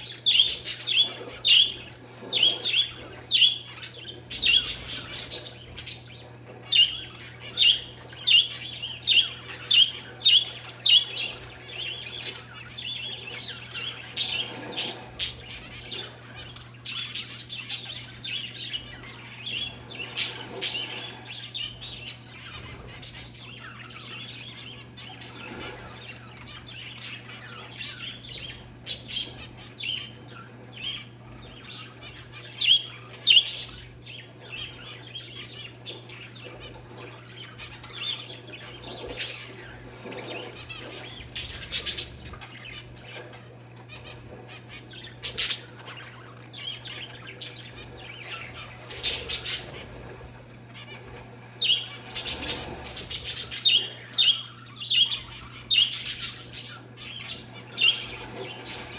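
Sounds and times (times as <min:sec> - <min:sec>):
small birds chirping: 0:00.0 - 0:58.9.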